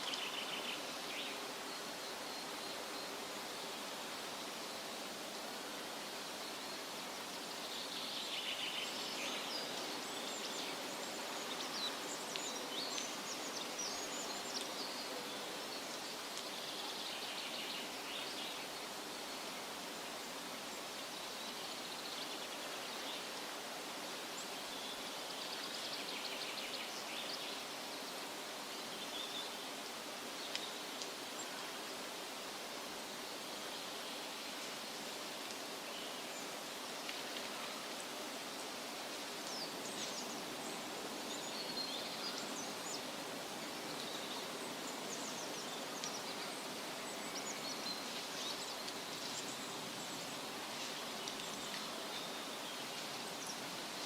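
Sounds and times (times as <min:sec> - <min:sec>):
wind rustling through trees: 0:00.0 - 0:54.0.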